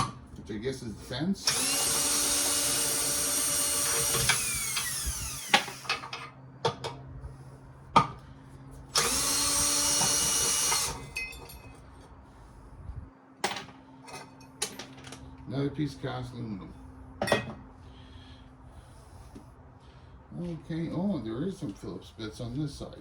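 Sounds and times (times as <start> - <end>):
power drill driver running: 1.4 - 6.1, 8.9 - 11.2.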